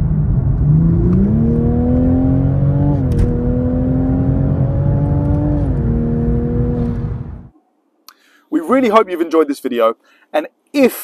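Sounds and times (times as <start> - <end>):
car engine accelerating: 0.0 - 7.5.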